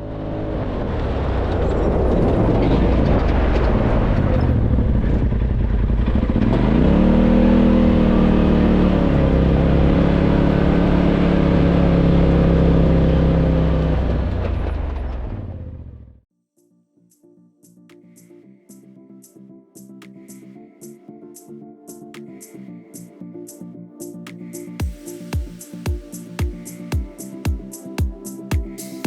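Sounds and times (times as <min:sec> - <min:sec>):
wind and road noise: 0:00.0 - 0:16.1
engine running at speed: 0:00.0 - 0:16.2.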